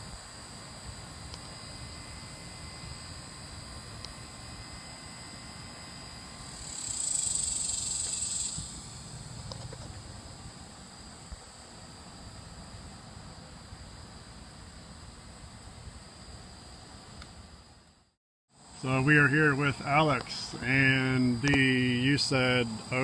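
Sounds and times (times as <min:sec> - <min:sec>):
high-pitched insect buzzing: 0:01.2 - 0:10.1.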